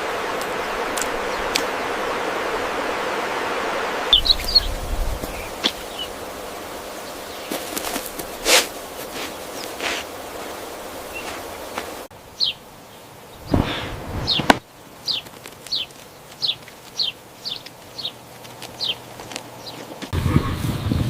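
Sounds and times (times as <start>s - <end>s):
small bird chirping: 4.1s - 6.2s, 11.1s - 19.9s
brief rush: 13.4s - 14.6s.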